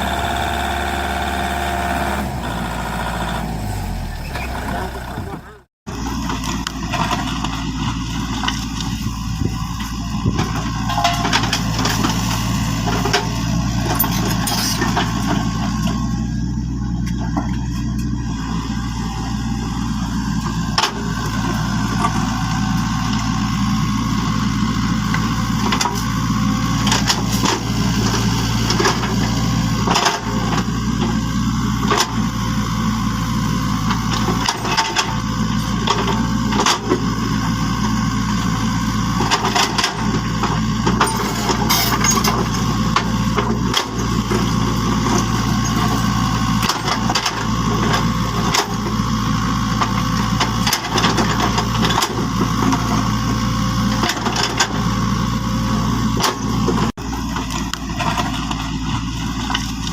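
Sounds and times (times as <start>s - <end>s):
engine idling: 0.0s - 5.7s.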